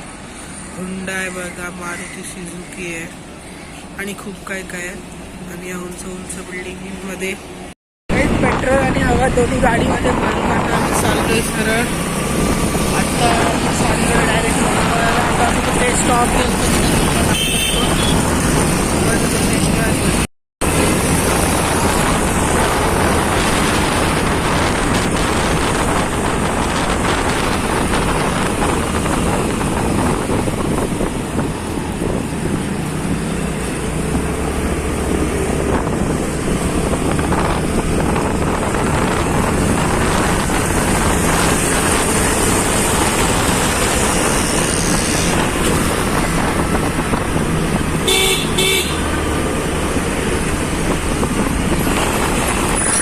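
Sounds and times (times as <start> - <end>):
vehicle engine and road noise: 0.0 - 53.0
car horn short beeps: 17.3 - 18.2, 48.0 - 49.1.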